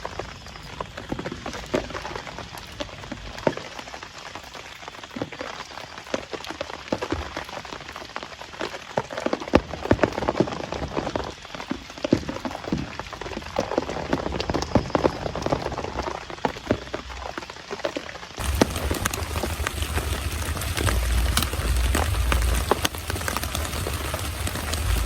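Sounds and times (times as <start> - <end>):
large raindrops pattering close by: 0.0 - 25.0
heavy rain falling: 18.3 - 25.0.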